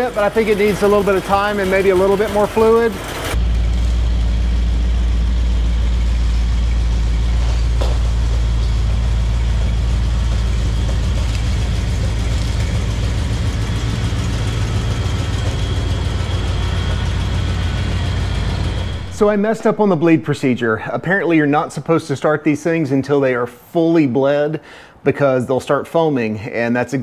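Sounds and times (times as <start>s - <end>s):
car engine idling: 0.0s - 20.9s.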